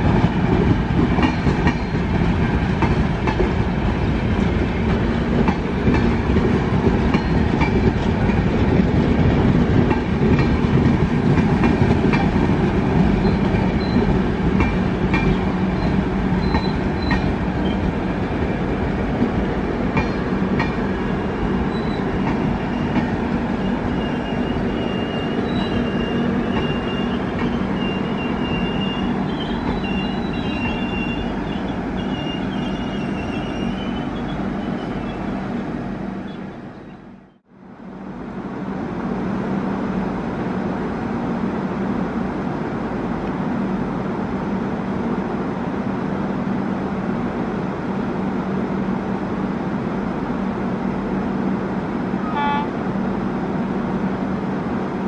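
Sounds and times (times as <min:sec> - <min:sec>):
diesel locomotive drone: 0:00.0 - 0:55.0
train wheels squealing: 0:01.3 - 0:02.1, 0:13.2 - 0:14.2, 0:15.2 - 0:17.9, 0:21.4 - 0:35.4
train horn toot: 0:52.2 - 0:52.8.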